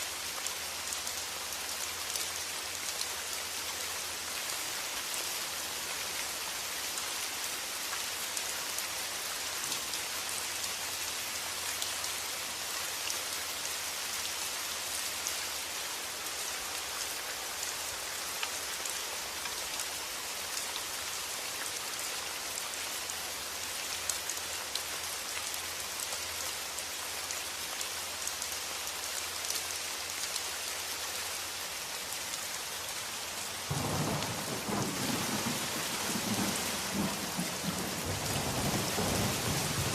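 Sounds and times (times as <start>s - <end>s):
steady rain falling: 0.0s - 39.9s
raindrops ticking on a surface: 6.0s - 10.8s, 33.3s - 39.9s
low rumble of thunder: 33.7s - 39.9s.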